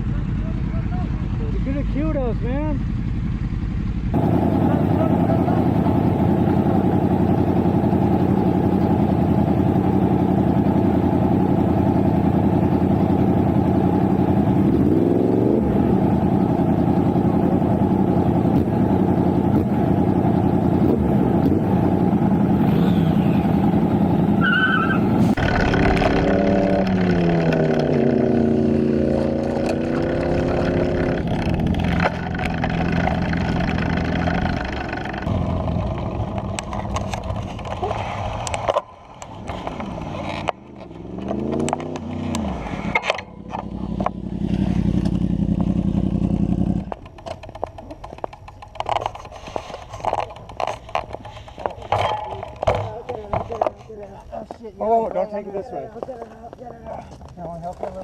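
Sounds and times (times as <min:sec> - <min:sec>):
motorcycle engine running: 0:00.0 - 0:54.6
engine revving: 0:04.1 - 0:47.1.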